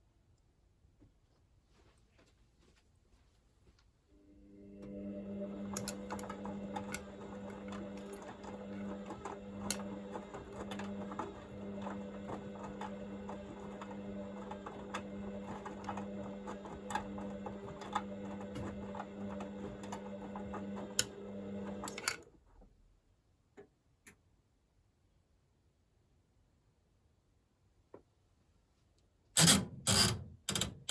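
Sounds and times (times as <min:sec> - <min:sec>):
washing machine motor humming: 0:04.2 - 0:22.0.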